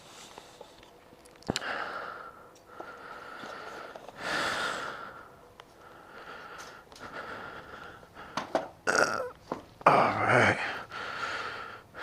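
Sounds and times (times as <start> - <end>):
person breathing through nose: 1.5 - 8.5, 10.6 - 12.0.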